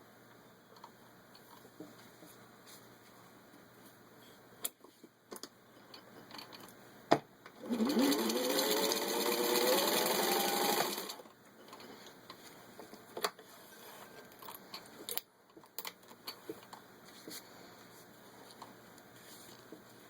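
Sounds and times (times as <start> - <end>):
sewing machine running: 7.6 - 11.2.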